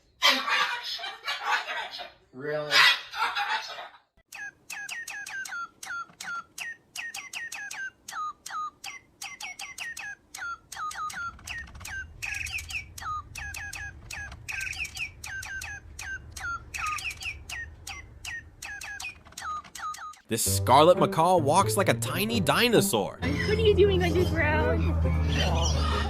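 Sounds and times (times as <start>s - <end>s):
parrot chirping: 0.2s - 20.3s, 23.2s - 26.0s
harsh buzzy bird calls: 4.3s - 20.2s, 24.8s - 26.0s.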